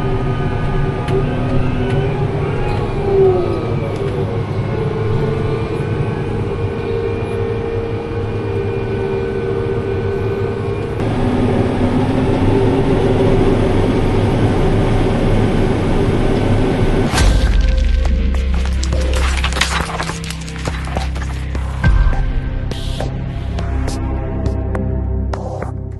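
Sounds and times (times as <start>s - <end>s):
held whine: 0.0s - 25.0s
diesel farm machinery running: 9.9s - 22.7s.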